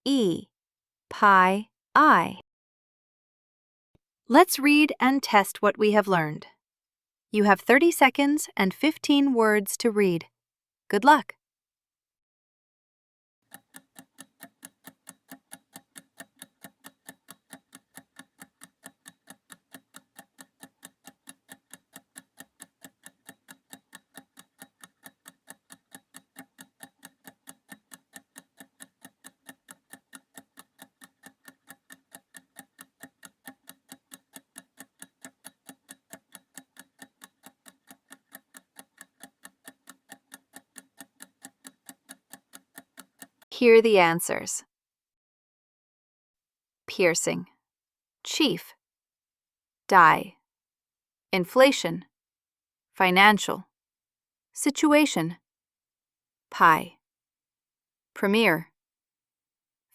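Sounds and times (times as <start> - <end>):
clock ticking: 13.4 - 43.5.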